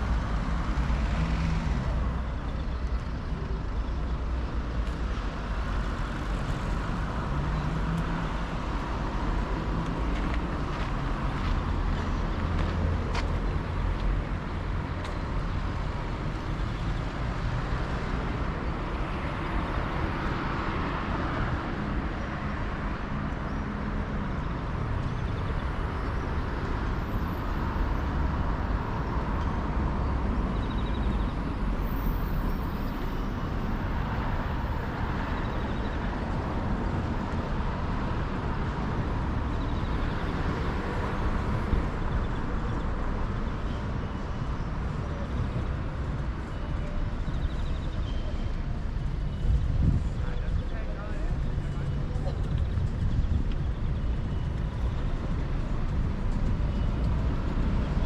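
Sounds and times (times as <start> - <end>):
low street rumble: 0.0 - 58.0.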